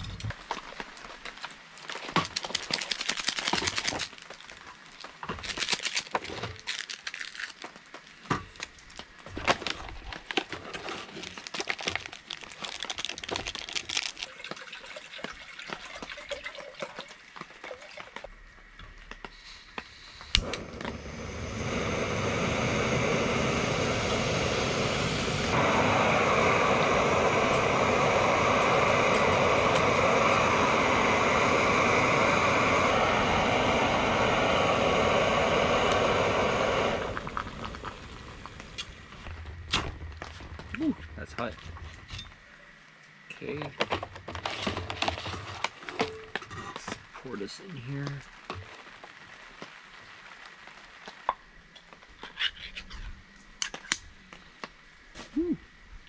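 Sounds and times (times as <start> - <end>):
packaging rustling: 0.3 - 14.5
gas stove burner hissing: 19.2 - 40.2.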